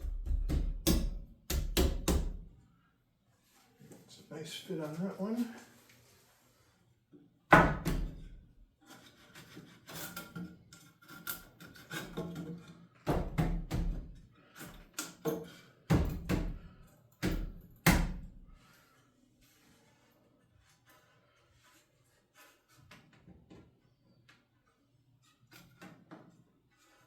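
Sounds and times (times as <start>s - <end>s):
wooden knocks and thuds: 0.0s - 2.4s, 7.5s - 8.3s.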